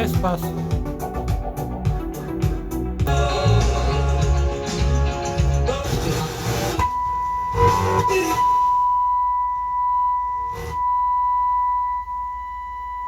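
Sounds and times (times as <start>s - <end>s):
music: 0.0s - 8.4s
sine test tone: 6.8s - 13.0s.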